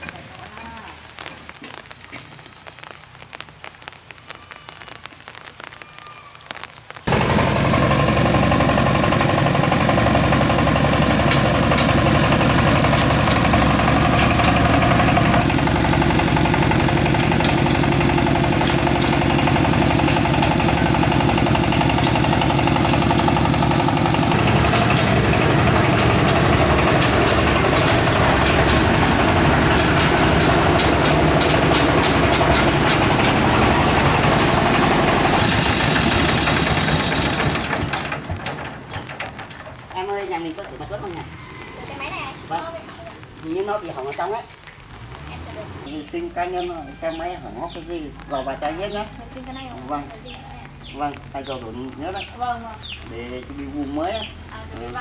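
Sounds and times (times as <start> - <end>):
engine running: 7.1 - 55.0.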